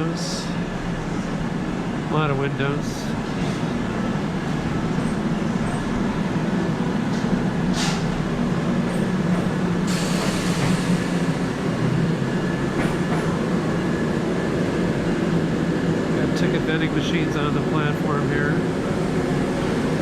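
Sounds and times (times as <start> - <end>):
train rumbling: 0.0 - 20.0
train air hiss: 7.7 - 8.2, 9.8 - 11.4.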